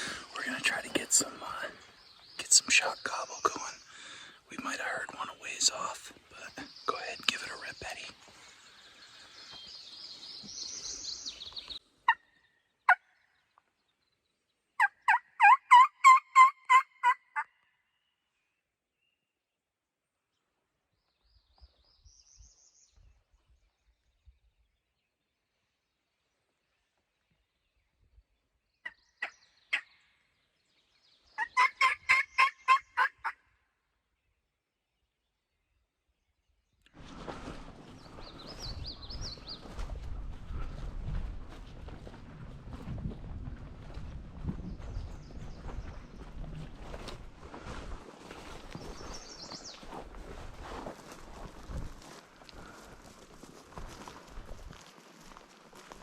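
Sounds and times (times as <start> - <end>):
turkey locator call: 14.8 - 17.5, 31.5 - 33.1.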